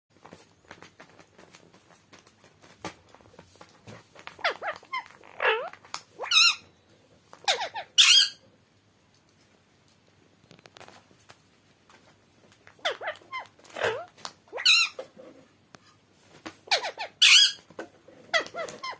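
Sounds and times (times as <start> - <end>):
parrot calling: 4.4 - 6.7, 7.4 - 8.4, 12.7 - 15.2, 16.6 - 18.9.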